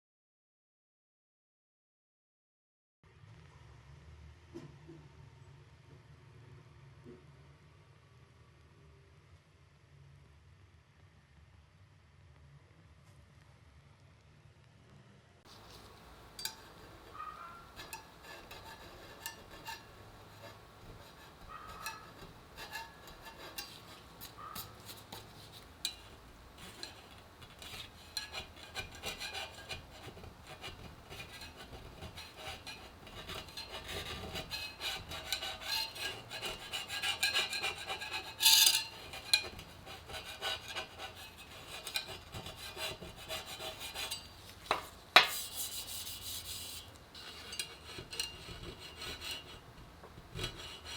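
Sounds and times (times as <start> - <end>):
hand tools scraping metal parts: 15.5 - 50.9.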